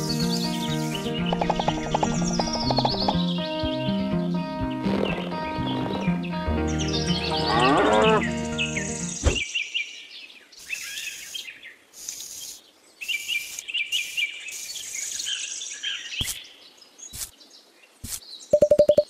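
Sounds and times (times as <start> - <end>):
small birds chirping: 0.0 - 19.0
sharp clicks: 1.3 - 3.2
faint hiss: 10.5 - 15.7.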